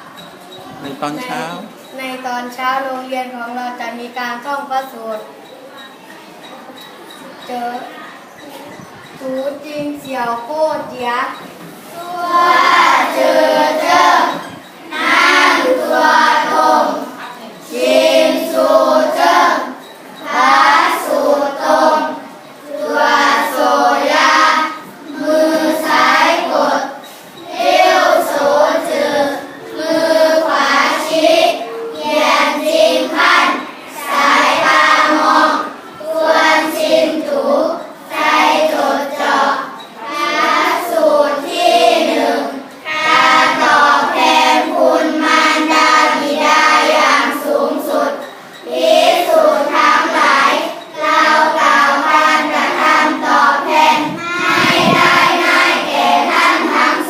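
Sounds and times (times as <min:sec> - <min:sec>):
children chanting in unison: 0:07.2 - 0:57.0.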